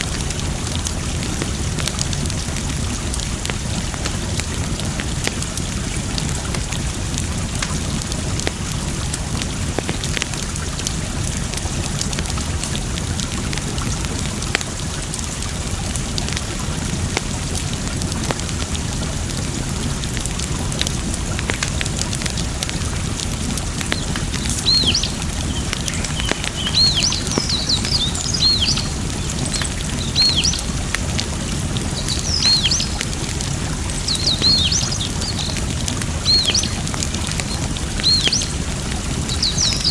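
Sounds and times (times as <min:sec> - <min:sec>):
running water: 0:00.0 - 0:39.9
wood fire crackling: 0:00.0 - 0:39.9
bird chirping: 0:24.0 - 0:30.7, 0:32.0 - 0:33.0, 0:34.0 - 0:35.6, 0:36.2 - 0:36.8, 0:37.4 - 0:38.6, 0:39.3 - 0:39.9.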